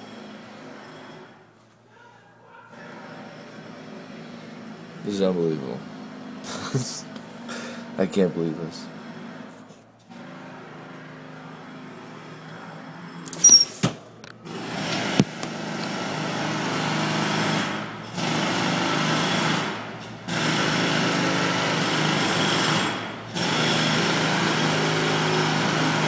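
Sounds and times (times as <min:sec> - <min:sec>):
jackhammer hammering: 0:00.0 - 0:01.3, 0:02.8 - 0:06.8, 0:14.4 - 0:26.0.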